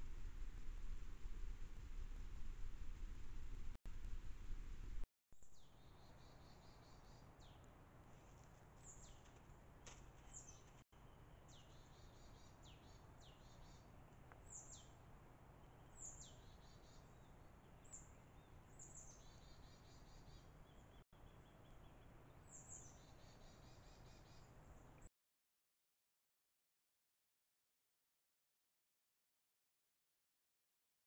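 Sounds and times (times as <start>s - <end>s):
steady low hiss: 0.0s - 5.0s.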